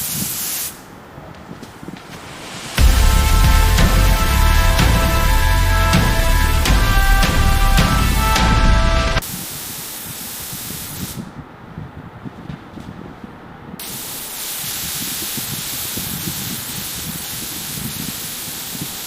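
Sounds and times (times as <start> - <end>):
steady spraying hiss: 0.0 - 11.4, 13.8 - 19.0
music: 2.7 - 9.2.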